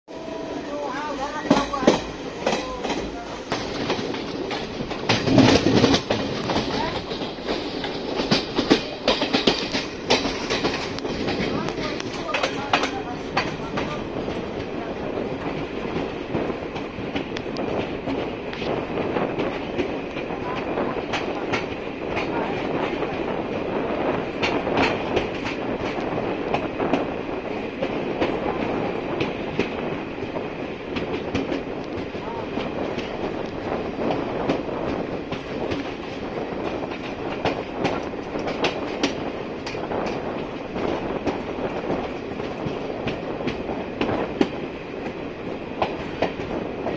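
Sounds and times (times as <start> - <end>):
train wheels rumbling on rails: 0.1 - 46.9
wheels clacking over rail joints: 0.9 - 18.7.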